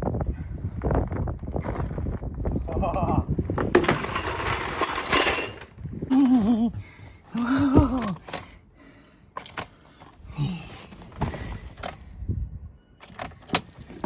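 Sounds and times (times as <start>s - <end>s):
short hummed vocal sound: 6.1s - 8.2s.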